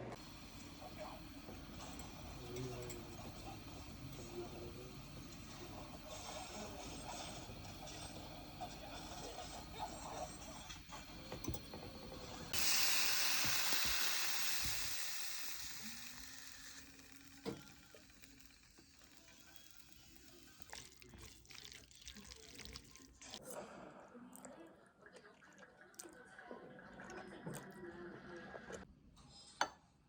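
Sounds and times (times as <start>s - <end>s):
loud hiss: 0.0s - 20.4s.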